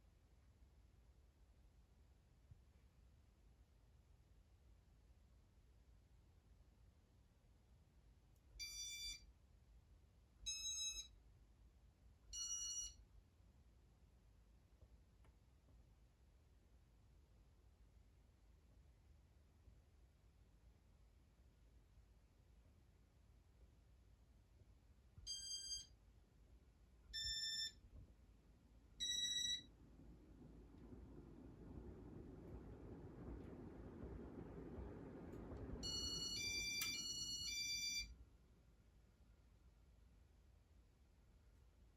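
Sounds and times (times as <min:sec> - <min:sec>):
electronic beeps rising in pitch: 0:27.2 - 0:27.8, 0:29.0 - 0:29.7
low rushing sound: 0:28.4 - 0:36.6.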